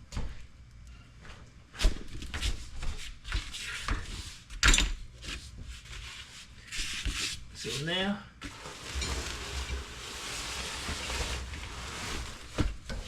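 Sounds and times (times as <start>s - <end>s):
hand tools and metal parts clattering: 8.4s - 13.0s.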